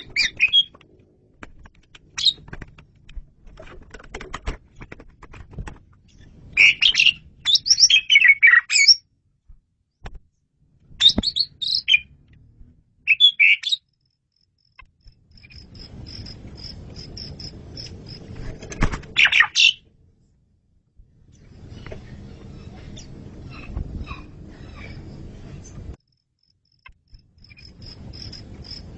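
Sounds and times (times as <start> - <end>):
starling singing: 0.0 - 0.8, 6.6 - 9.0, 11.0 - 12.1, 13.1 - 13.8.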